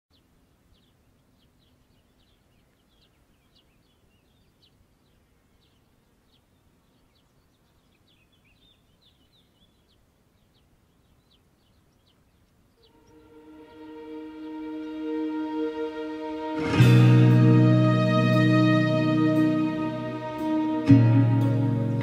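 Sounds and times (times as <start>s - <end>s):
faint bird chirps: 0.1s - 13.7s
open-air hiss: 0.1s - 22.0s.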